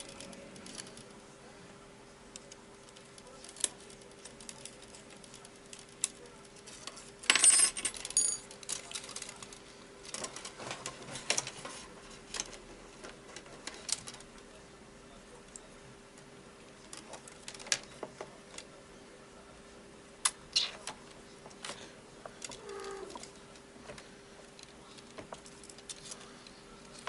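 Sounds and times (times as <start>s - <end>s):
small parts clicking and tapping: 12.3s - 14.4s, 21.6s - 27.0s.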